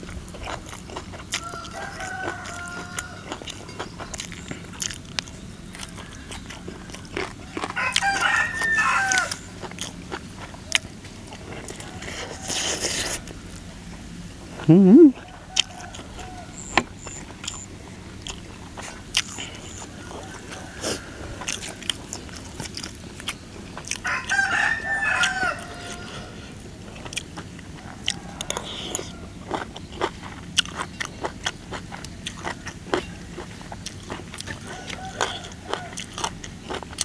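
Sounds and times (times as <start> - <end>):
chewing and crunching: 0.0 - 37.0
rooster crowing: 1.3 - 3.8, 6.0 - 9.6, 15.1 - 17.1, 19.8 - 21.9, 24.0 - 26.6, 27.7 - 29.6, 34.5 - 36.3.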